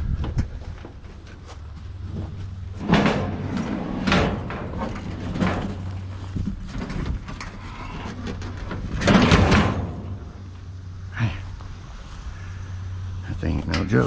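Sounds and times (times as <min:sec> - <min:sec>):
steady low hum: 0:00.0 - 0:14.0
metal scraping and clanking on metal: 0:01.2 - 0:10.8.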